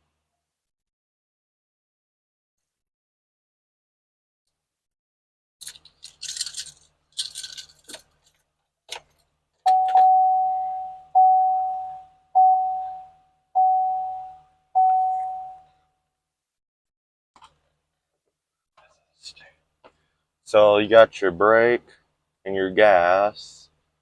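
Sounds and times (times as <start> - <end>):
dashboard warning chime: 9.7 - 15.7.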